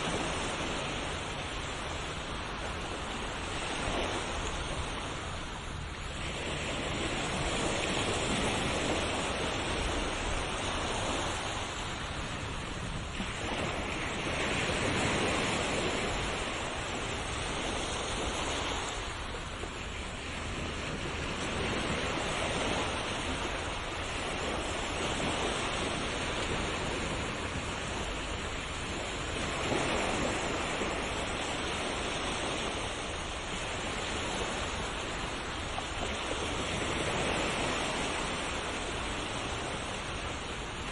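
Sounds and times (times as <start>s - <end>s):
ocean waves surging on shore: 0.0s - 40.9s.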